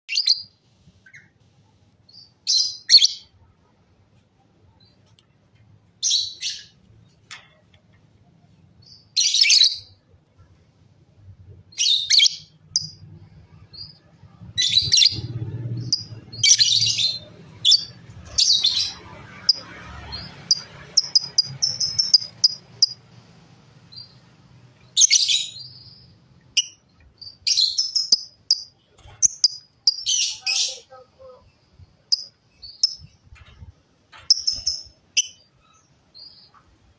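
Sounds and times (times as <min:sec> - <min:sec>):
lovebirds chirping: 0:00.1 - 0:01.4, 0:02.0 - 0:03.4, 0:06.0 - 0:07.2, 0:08.4 - 0:10.0, 0:11.7 - 0:33.4, 0:34.1 - 0:36.7.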